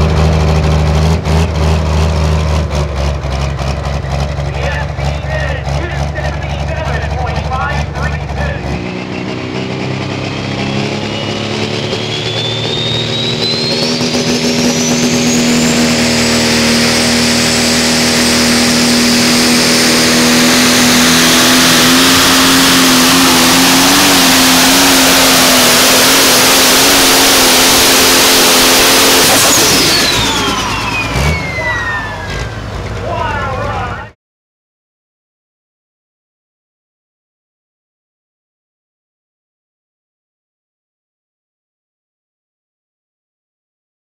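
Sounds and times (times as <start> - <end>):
engine running flat out: 0.0 - 34.2.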